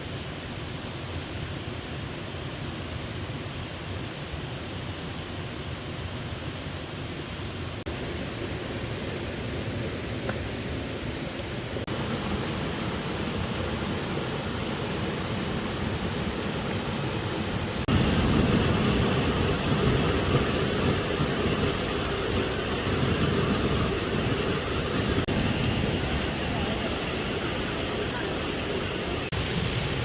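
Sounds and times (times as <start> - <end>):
waterfall rushing: 7.6 - 30.0.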